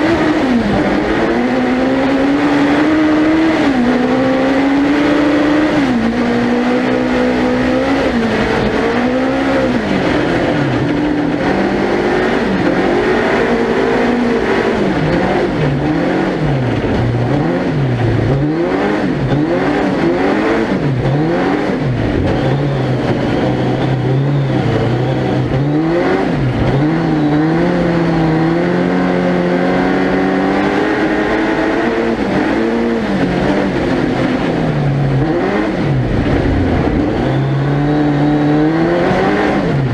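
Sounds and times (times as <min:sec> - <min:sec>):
racing engine revving: 0:00.0 - 0:39.9
studded tyres rolling: 0:00.0 - 0:39.9.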